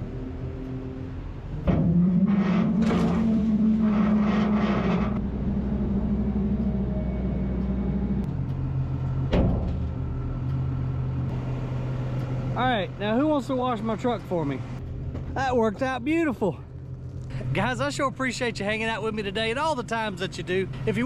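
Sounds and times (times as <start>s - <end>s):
diesel engine revving: 0.0s - 14.9s.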